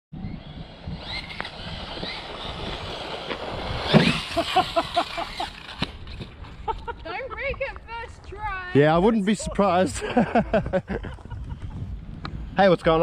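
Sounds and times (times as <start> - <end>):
rc car electric motor whining: 0.2 - 6.4
tyres on the ground: 0.3 - 8.4.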